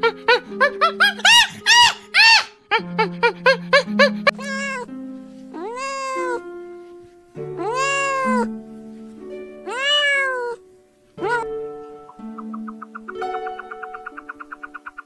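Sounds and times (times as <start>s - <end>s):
animal crying: 0.0s - 4.9s, 5.6s - 6.5s, 7.6s - 8.6s, 9.6s - 10.6s, 11.2s - 15.0s
background music: 0.0s - 15.0s.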